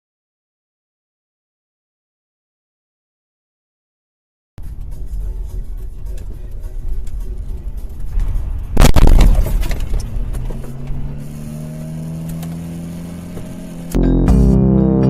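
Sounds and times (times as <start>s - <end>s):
music: 4.6s - 8.8s, 13.9s - 15.0s
car running with road rumble: 4.6s - 15.0s
car collision impact crunching: 8.1s - 11.6s
steady low tone: 13.6s - 15.0s.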